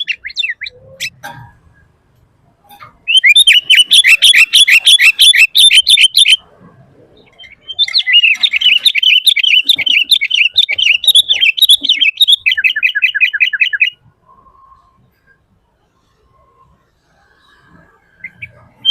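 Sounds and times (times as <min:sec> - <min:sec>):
bulbul singing: 0:00.0 - 0:01.4, 0:02.6 - 0:06.4, 0:07.2 - 0:14.9.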